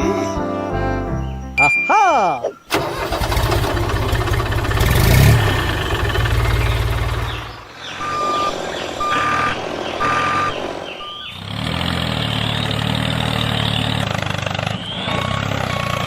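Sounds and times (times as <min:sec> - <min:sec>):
engine running steadily: 0:02.7 - 0:07.6
reversing alarm beeping: 0:07.9 - 0:11.4, 0:14.9 - 0:16.0.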